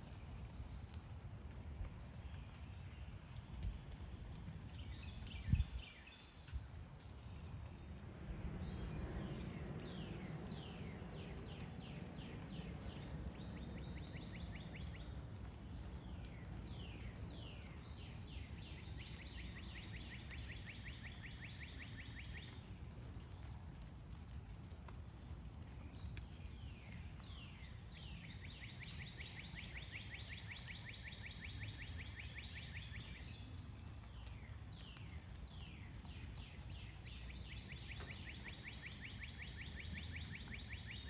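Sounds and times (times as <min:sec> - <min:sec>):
low outdoor rumble: 0:06.6 - 0:20.3.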